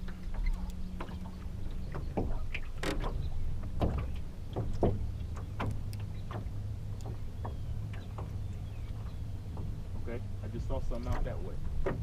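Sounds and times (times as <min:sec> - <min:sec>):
low steady hum: 0:00.0 - 0:12.0
water splashing against hull: 0:00.0 - 0:12.0.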